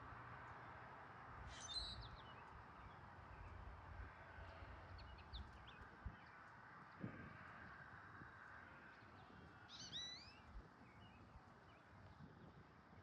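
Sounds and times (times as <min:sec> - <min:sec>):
small birds chirping: 0:01.5 - 0:03.6, 0:09.7 - 0:12.2.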